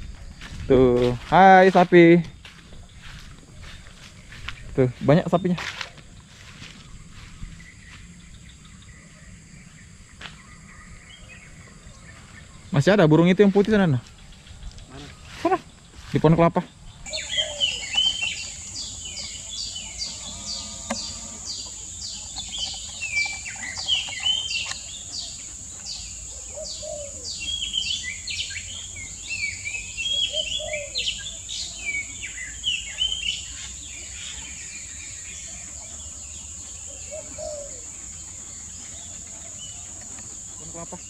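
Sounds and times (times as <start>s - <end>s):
birds whistling: 16.7s - 41.0s
high-pitched insect drone: 17.1s - 27.3s.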